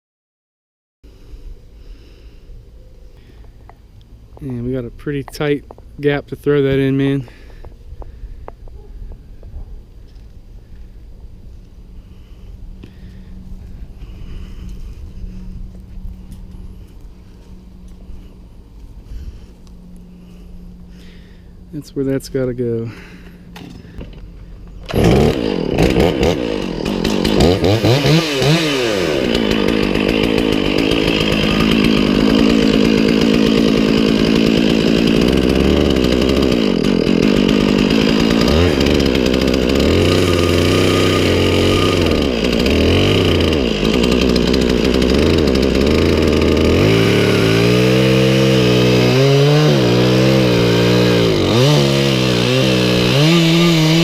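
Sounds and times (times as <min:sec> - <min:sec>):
chainsaw running and revving: 0:23.8 - 0:54.0.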